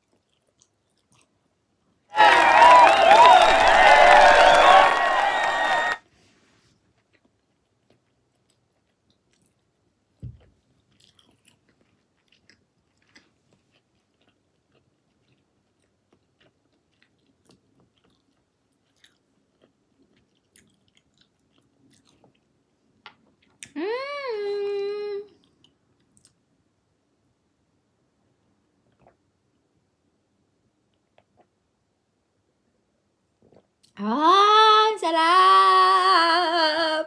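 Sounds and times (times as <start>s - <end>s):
soft mouth clicks chewing: 0.0s - 2.0s, 6.7s - 23.8s, 25.3s - 26.5s, 28.8s - 29.6s, 30.9s - 31.6s, 33.4s - 34.0s.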